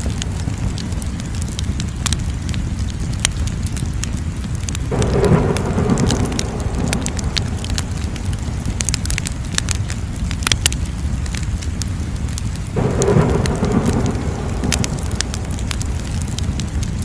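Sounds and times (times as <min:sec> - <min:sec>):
wood fire crackling and popping: 0:00.0 - 0:17.0
low rumble: 0:04.6 - 0:11.5, 0:12.2 - 0:17.0
rushing noise: 0:04.8 - 0:10.0, 0:12.7 - 0:17.0.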